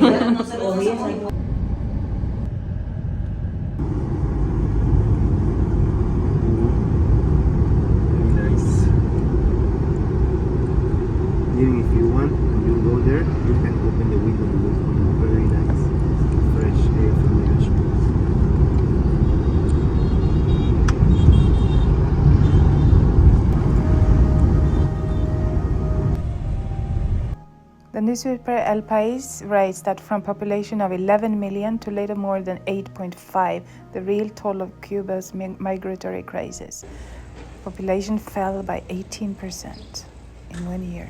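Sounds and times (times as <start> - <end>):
car road and engine rumble: 1.3 - 27.4.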